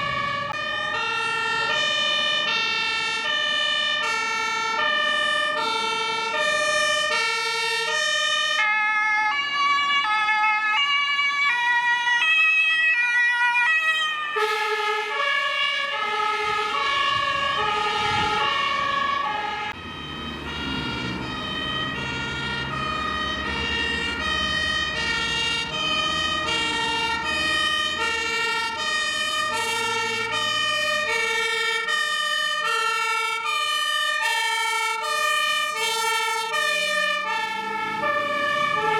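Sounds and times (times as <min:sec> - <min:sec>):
diesel truck engine rumbling: 0:00.0 - 0:38.9
two-tone fire engine sirens: 0:00.0 - 0:38.9.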